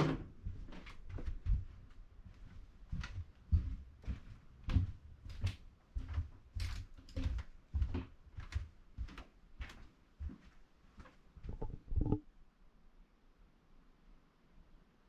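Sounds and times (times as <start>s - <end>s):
footsteps walking: 0.5s - 12.2s.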